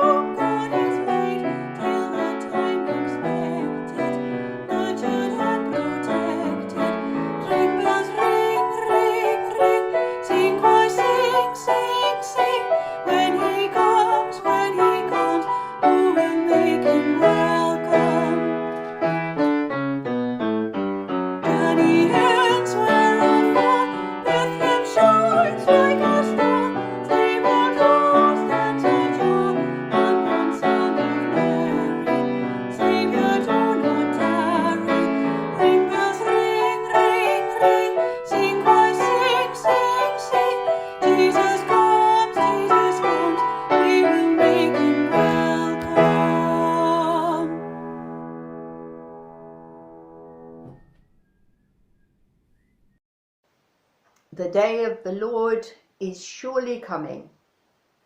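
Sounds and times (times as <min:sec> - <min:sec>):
person singing: 0:00.0 - 0:18.7, 0:21.4 - 0:47.6
piano playing: 0:00.0 - 0:51.5.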